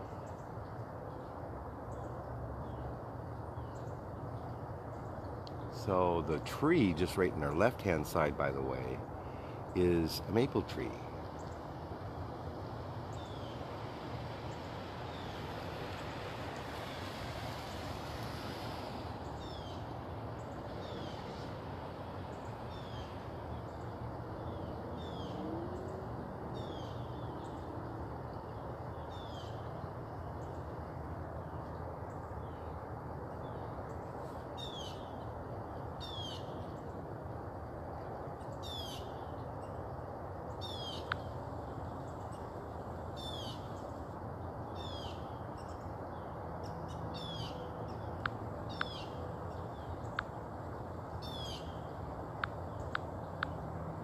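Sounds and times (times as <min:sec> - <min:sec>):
outdoor background hum: 0:00.0 - 0:54.0
birds chirping: 0:03.6 - 0:11.8, 0:22.3 - 0:30.7, 0:38.4 - 0:39.8, 0:40.5 - 0:44.1, 0:44.7 - 0:50.4, 0:51.1 - 0:53.6.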